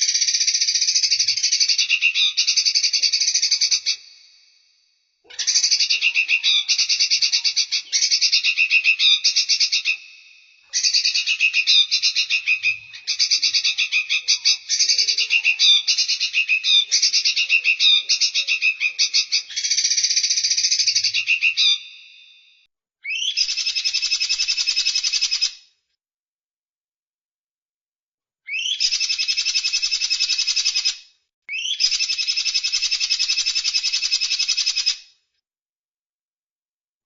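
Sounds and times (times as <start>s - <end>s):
songbird singing: 0.0s - 4.1s, 5.3s - 22.2s, 23.1s - 24.5s, 28.5s - 29.5s, 31.5s - 32.2s.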